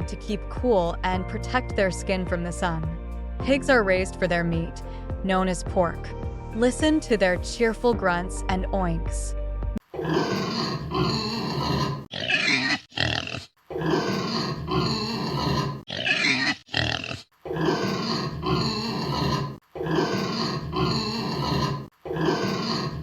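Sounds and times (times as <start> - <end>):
pigs high-pitched calls: 9.9 - 23.0
pigs grunting and oinking: 10.0 - 23.0.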